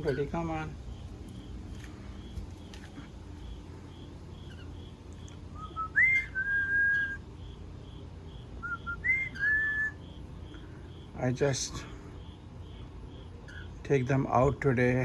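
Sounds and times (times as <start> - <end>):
whistled phrases sweeping up: 5.6 - 7.2, 8.6 - 10.0.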